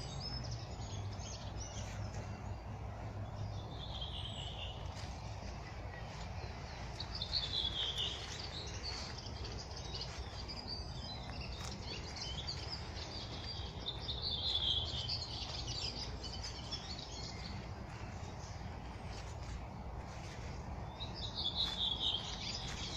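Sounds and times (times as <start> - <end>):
songbirds chirping: 0.0 - 22.9
steady low background hum: 0.0 - 22.9.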